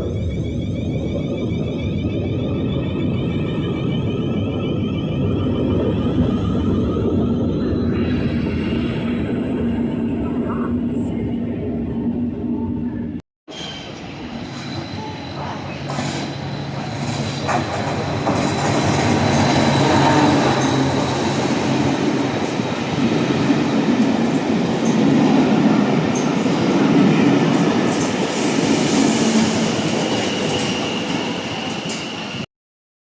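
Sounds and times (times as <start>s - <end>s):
high-pitched whine: 0.0s - 32.4s
train wheels on rails: 13.6s - 32.5s.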